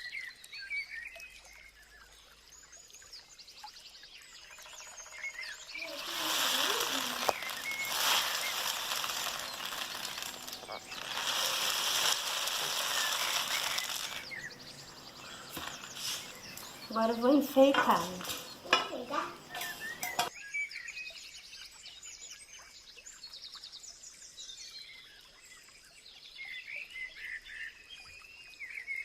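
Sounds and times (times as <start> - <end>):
birds chirping faintly: 4.5 - 20.3
rain stick rattling hiss: 5.8 - 20.3.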